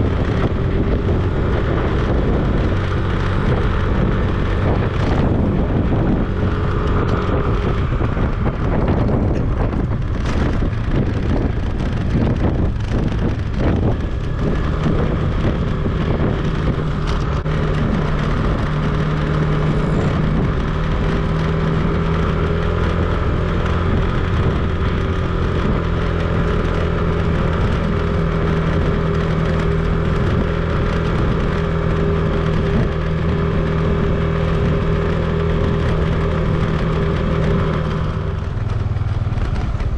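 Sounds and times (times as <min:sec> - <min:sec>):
vehicle engine running: 0:00.0 - 0:39.9
wind noise on microphone: 0:00.0 - 0:39.9.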